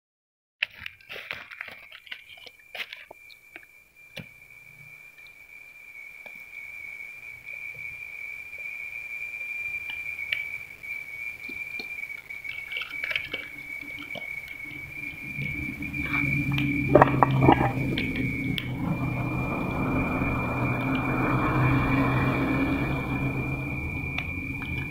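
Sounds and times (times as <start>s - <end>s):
steady high whistle: 5.8s - 24.9s
low rumble of flames: 13.4s - 24.9s.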